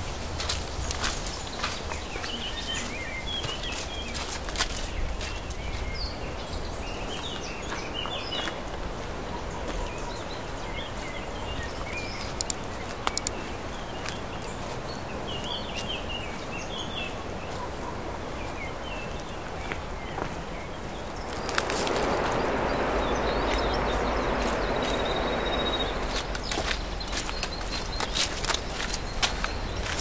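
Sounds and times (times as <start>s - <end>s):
small birds chirping: 9.5s - 17.6s, 18.4s - 30.0s
sharp clicks: 12.3s - 13.4s
outdoor background hiss: 19.9s - 28.5s.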